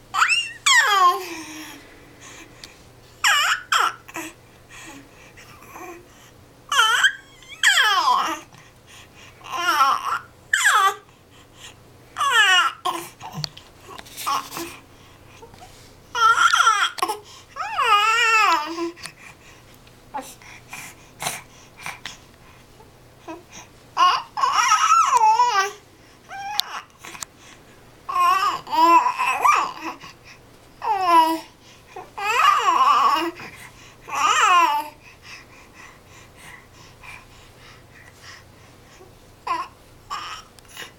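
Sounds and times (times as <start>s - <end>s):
baby babbling and squealing: 0.2s - 1.4s, 3.2s - 4.0s, 6.7s - 8.4s, 16.2s - 17.0s, 24.0s - 26.8s.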